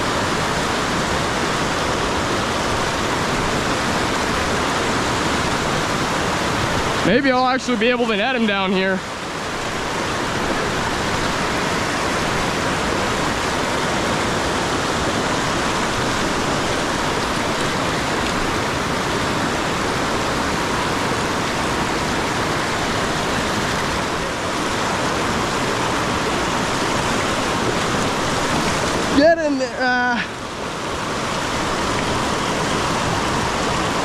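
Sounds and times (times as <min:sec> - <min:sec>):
fast-flowing river water: 0:00.0 - 0:34.0.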